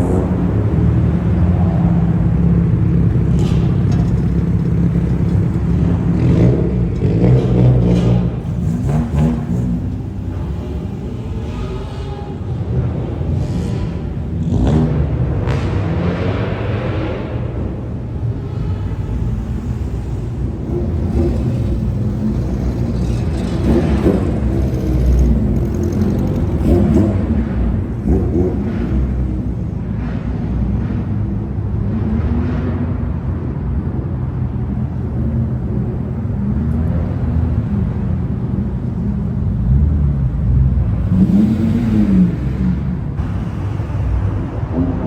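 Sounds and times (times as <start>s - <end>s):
car engine and exhaust revving: 0.0s - 45.0s.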